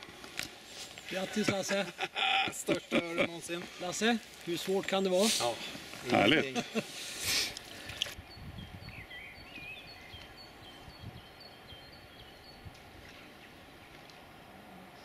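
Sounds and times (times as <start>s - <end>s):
outdoor background hiss: 0.0s - 15.0s
small bird chirping: 8.2s - 14.0s.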